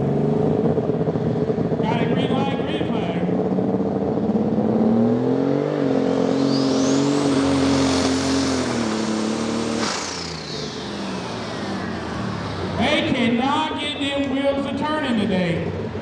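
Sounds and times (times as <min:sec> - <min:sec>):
tractor diesel engine revving: 0:00.0 - 0:16.0
high-pitched whine: 0:05.4 - 0:15.8.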